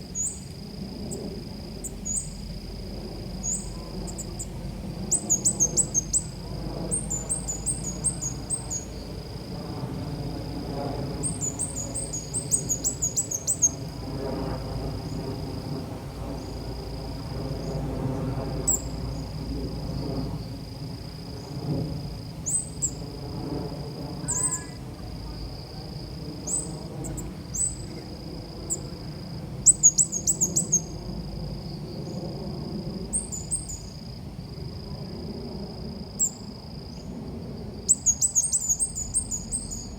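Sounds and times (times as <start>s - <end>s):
steady high-pitched whine: 0.0s - 39.9s
songbird high rapid chirps: 11.3s - 13.8s.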